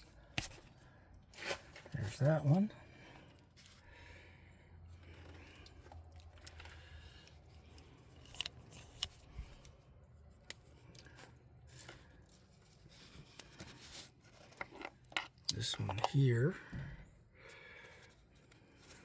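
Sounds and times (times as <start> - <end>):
tools clicking and scraping: 13.3 - 16.3.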